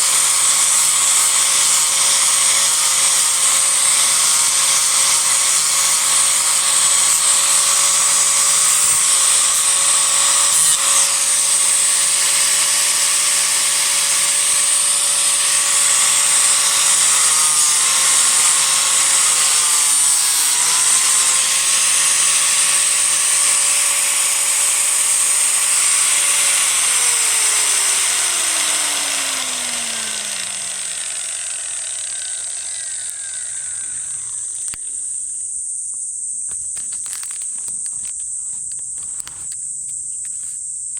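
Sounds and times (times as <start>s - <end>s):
disc grinder whining on wood: 0.0s - 35.0s
grinder disc spinning down: 0.0s - 35.0s
high insect drone: 28.7s - 40.9s.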